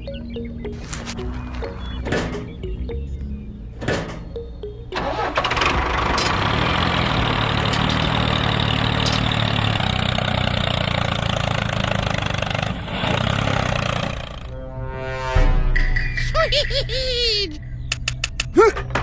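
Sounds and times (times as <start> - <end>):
engine starting and running: 3.8 - 14.5.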